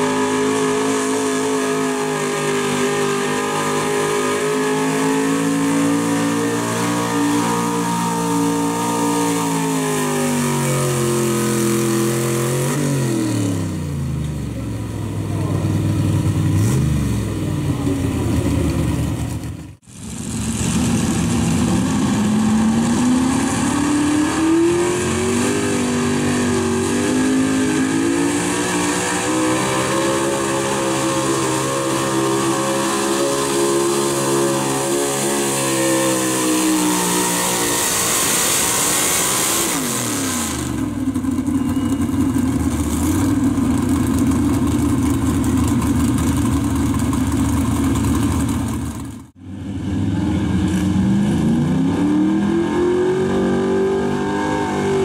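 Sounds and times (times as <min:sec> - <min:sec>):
pickup truck engine revving: 0:00.0 - 0:14.2, 0:15.0 - 0:41.3.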